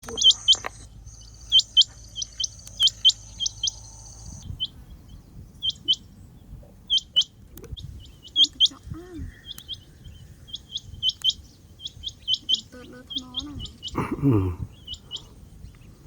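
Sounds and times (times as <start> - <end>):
steady high whine: 0.0 - 6.1
quail calling: 0.0 - 15.4.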